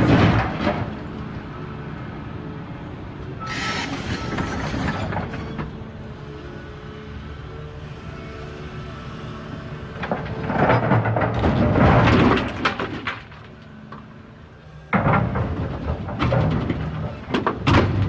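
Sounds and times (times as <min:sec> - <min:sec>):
rocks crashing into steel truck bed: 0:00.0 - 0:01.0, 0:10.4 - 0:13.5, 0:14.9 - 0:18.0.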